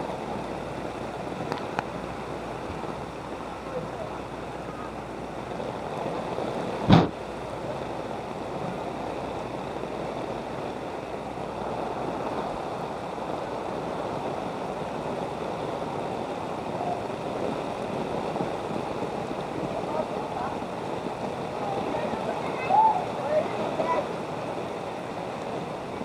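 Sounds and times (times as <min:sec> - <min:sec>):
flood water sloshing: 0:00.0 - 0:26.0
sharp knock: 0:06.9 - 0:07.2.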